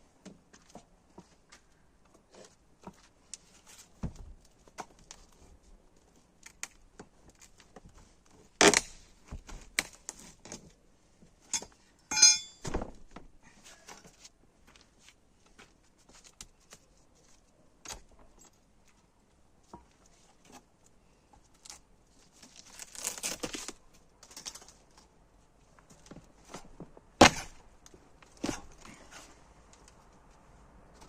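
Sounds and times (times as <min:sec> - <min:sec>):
ringing metallic clink: 0:11.6 - 0:12.6.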